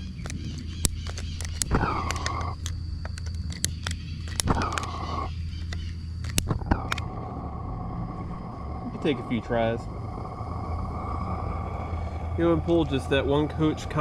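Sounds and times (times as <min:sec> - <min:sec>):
sharp clicks of gas igniter: 0:00.2 - 0:07.1
gas hissing bursts: 0:06.5 - 0:14.0.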